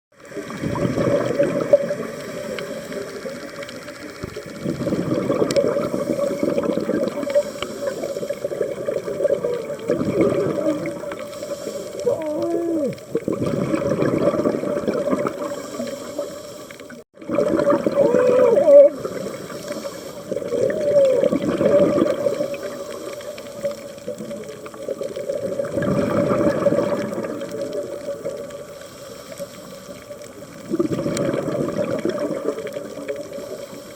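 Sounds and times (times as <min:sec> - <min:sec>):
exhaled bubbles rushing: 0:00.1 - 0:28.7, 0:30.0 - 0:33.9
diver breathing through regulator: 0:05.5 - 0:08.8, 0:11.1 - 0:12.7, 0:15.3 - 0:17.0, 0:18.9 - 0:20.8, 0:28.6 - 0:30.0
muffled voice underwater: 0:09.3 - 0:11.1, 0:12.0 - 0:13.2, 0:17.4 - 0:19.2, 0:20.5 - 0:22.3.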